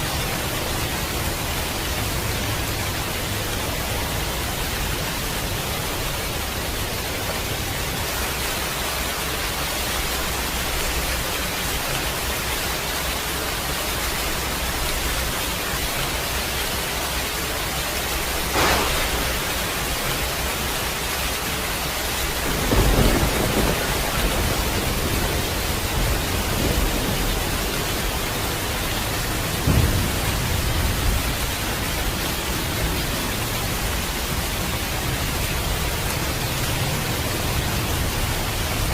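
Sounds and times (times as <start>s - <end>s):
heavy rain falling: 0.0s - 38.9s
low thunder rumbles: 18.3s - 34.5s
thunder crack: 18.4s - 20.6s, 22.3s - 28.8s, 29.5s - 31.5s.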